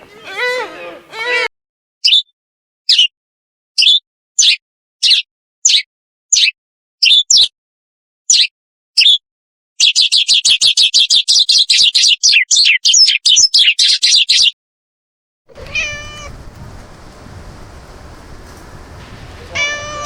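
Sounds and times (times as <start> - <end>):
drawn-out meow: 0.0 - 1.5, 15.5 - 20.0
background noise: 15.5 - 20.0
kittens mewing rapidly: 15.5 - 20.0.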